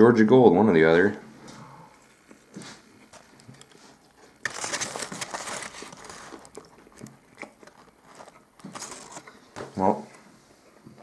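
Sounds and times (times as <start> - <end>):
paper wrapper crinkling: 2.0 - 10.1.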